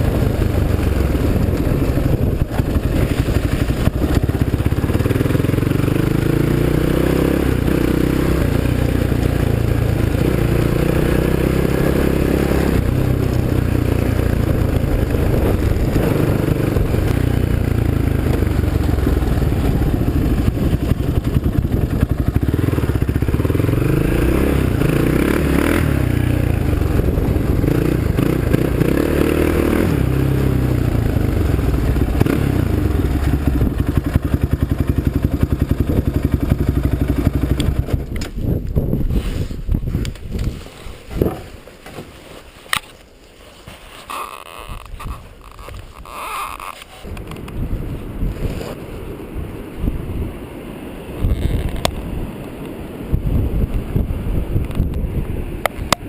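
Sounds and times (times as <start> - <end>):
quad bike engine revving: 0.0 - 38.1.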